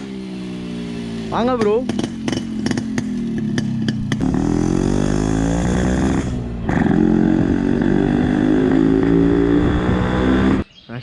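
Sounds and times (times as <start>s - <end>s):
vehicle engine accelerating: 0.0s - 10.6s.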